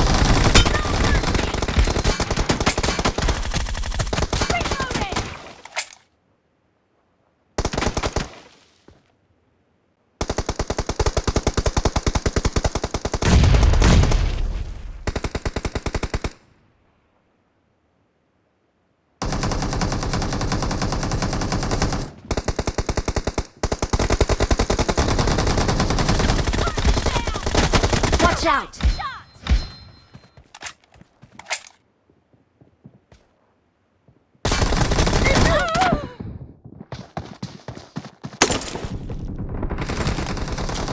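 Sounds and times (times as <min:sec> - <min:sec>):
video game automatic gunfire: 0:00.0 - 0:05.2, 0:19.2 - 0:28.5, 0:38.4 - 0:40.9.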